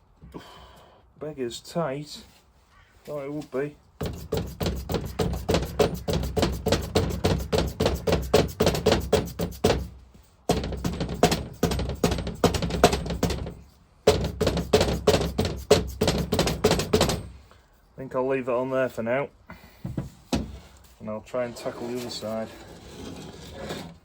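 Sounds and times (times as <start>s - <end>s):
hammer blows on metal: 4.0s - 9.9s.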